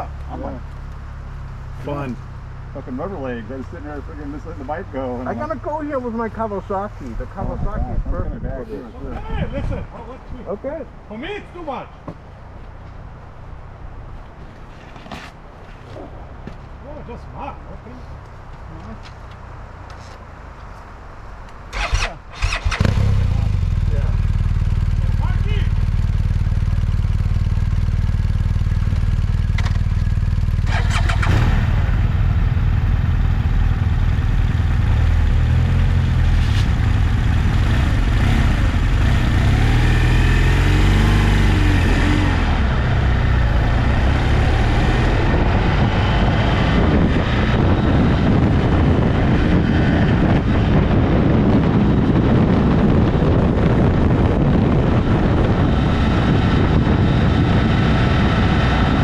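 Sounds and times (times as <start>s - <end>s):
wind and riding noise: 0.0s - 59.0s
motorcycle engine revving: 21.7s - 59.0s.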